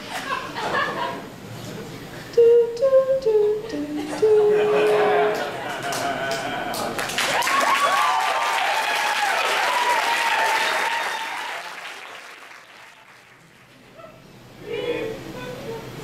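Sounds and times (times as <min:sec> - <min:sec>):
audience whooping: 0:04.5 - 0:12.9
audience applauding: 0:05.3 - 0:13.9.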